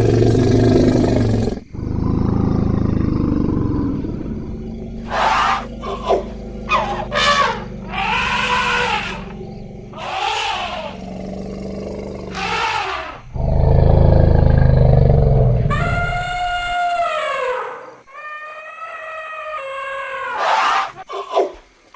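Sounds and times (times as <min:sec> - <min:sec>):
elephant deep rumbling call: 0:00.0 - 0:17.6
elephants trumpeting: 0:04.1 - 0:11.2, 0:12.2 - 0:13.6.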